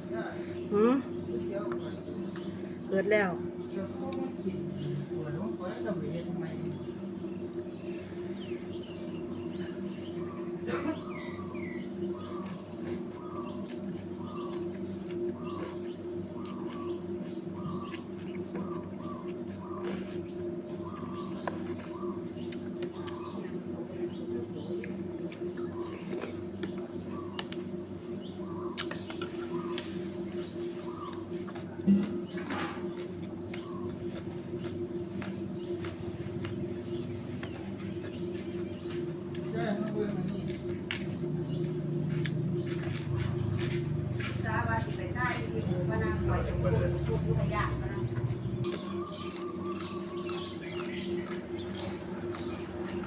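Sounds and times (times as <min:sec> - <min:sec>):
small birds chirping: 0:00.0 - 0:53.0
steady low hum: 0:00.0 - 0:53.0
chewing and slurping noodles: 0:11.1 - 0:23.7, 0:40.3 - 0:44.4, 0:48.6 - 0:53.0.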